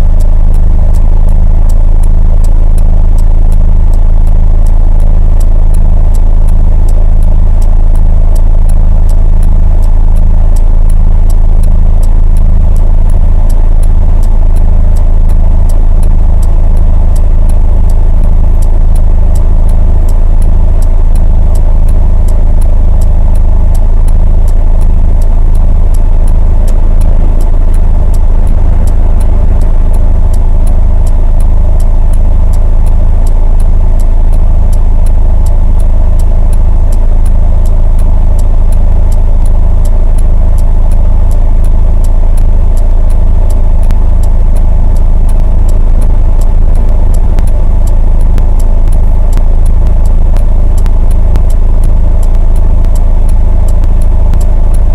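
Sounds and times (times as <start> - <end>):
faint even ticking: 0.0 - 54.9
vehicle low rumble: 0.0 - 54.9.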